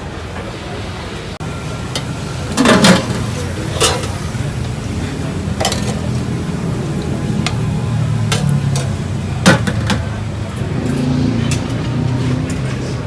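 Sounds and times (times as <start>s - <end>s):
low rumble of restaurant noise: 0.0s - 13.0s
dishes and cutlery clinking: 1.9s - 6.4s, 7.0s - 10.2s, 10.8s - 12.9s.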